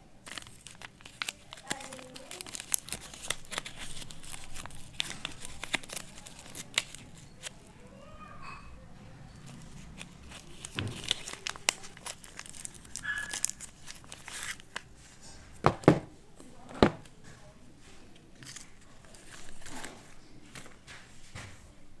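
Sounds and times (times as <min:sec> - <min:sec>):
wrapper crinkling and tearing: 0:00.2 - 0:07.8, 0:09.4 - 0:15.3, 0:18.4 - 0:20.8.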